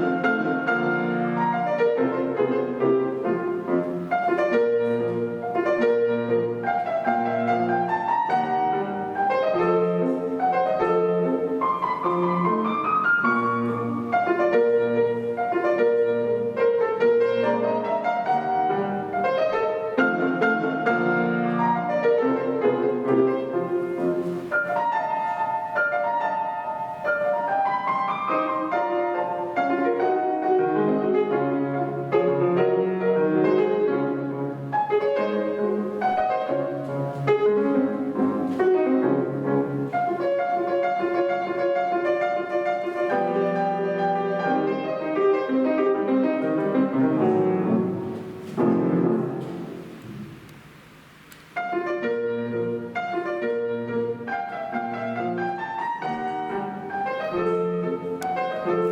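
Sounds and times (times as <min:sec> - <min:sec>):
solo classical piano: 0:00.0 - 0:58.9.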